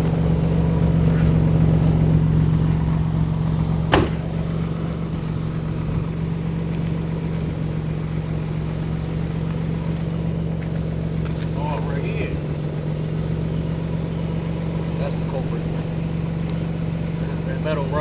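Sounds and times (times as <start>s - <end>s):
car engine idling: 0.0s - 18.0s
sharp knock: 3.9s - 4.4s.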